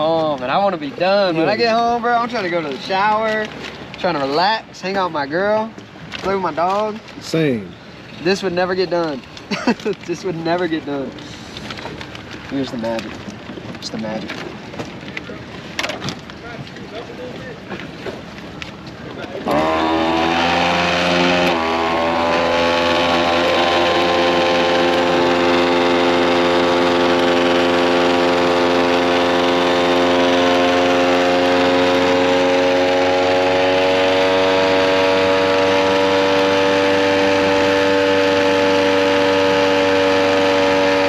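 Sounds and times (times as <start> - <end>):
vacuum sealer pump humming: 19.5 - 41.0.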